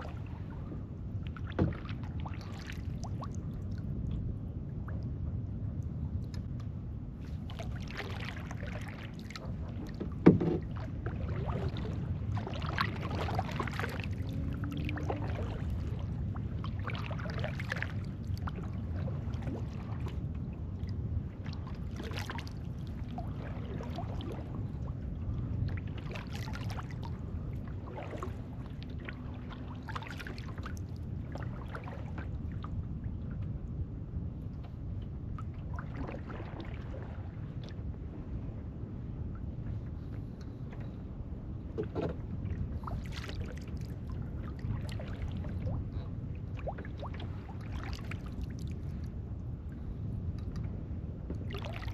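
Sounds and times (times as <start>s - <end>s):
low hum of wind and water: 0.0s - 51.9s
paddle strokes splashing: 7.3s - 16.1s
paddle knocking kayak hull: 10.0s - 10.8s.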